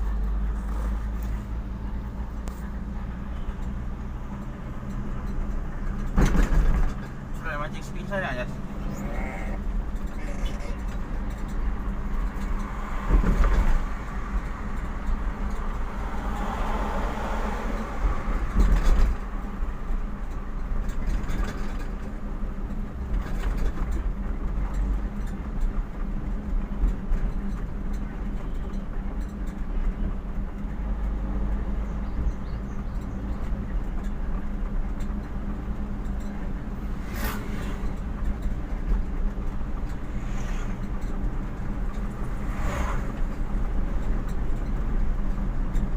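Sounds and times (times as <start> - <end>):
vehicle engine and road noise: 0.0 - 45.9.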